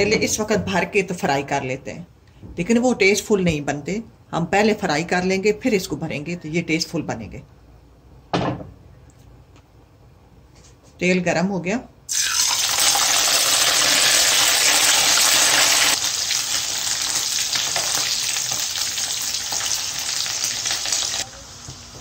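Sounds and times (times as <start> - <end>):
vegetables sizzling in hot oil: 12.1 - 22.0.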